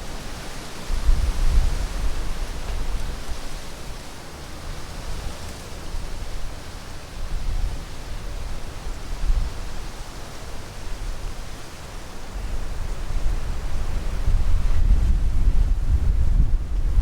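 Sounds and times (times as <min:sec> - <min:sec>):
wind gusting against microphone: 0:00.0 - 0:17.0.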